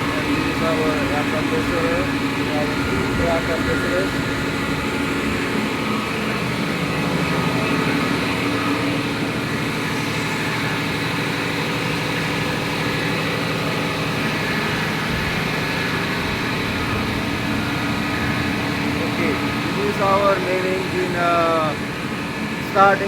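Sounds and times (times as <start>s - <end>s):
engine room machinery drone: 0.0s - 23.0s.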